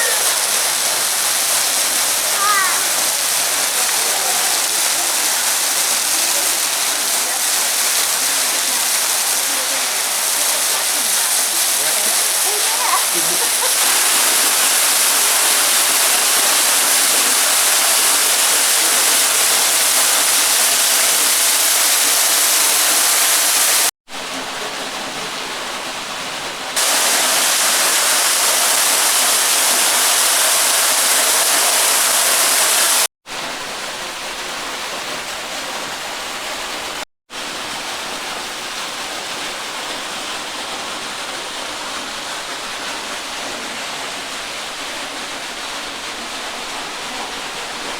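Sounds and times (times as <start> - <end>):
waterfall rushing: 0.0 - 23.9, 26.8 - 33.1.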